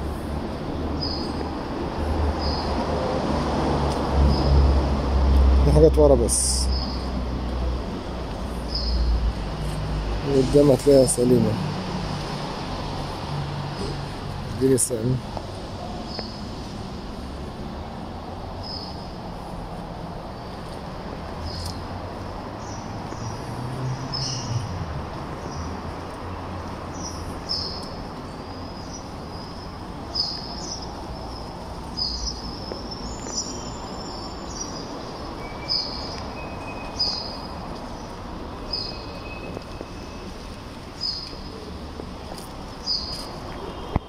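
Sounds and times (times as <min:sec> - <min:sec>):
bird chirping: 0:26.9 - 0:40.4.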